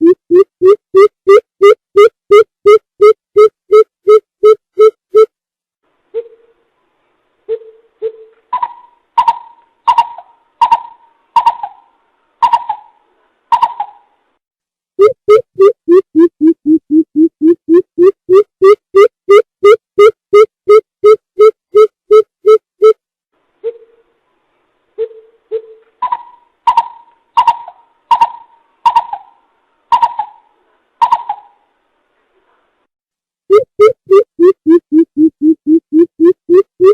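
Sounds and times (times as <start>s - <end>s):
bird hooting calls: 7.5s - 14.0s, 25.0s - 30.4s
bird hooting call: 25.0s - 30.4s.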